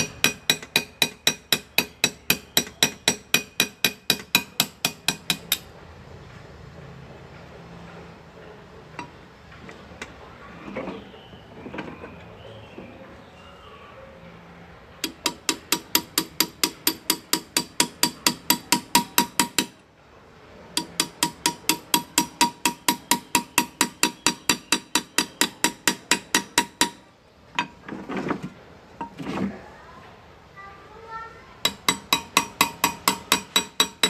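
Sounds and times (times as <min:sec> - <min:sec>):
hammer tapping chisel into metal: 0:00.0 - 0:05.7, 0:09.0 - 0:09.2, 0:15.0 - 0:19.8, 0:20.7 - 0:27.8, 0:31.6 - 0:34.0.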